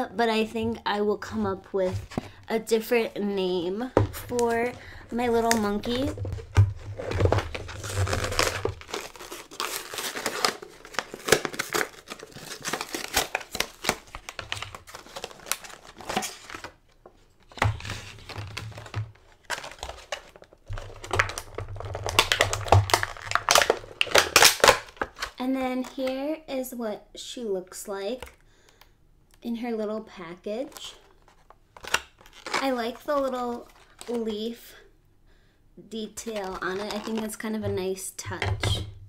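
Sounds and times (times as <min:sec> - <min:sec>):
plastic packaging crinkling: 0:03.6 - 0:16.8, 0:17.4 - 0:26.1, 0:30.7 - 0:34.3, 0:36.3 - 0:37.9.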